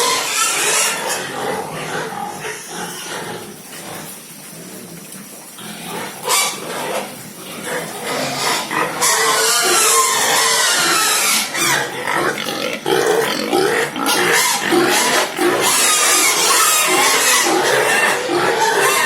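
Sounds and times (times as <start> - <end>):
pigs squealing: 0.0 - 4.2, 5.6 - 19.0.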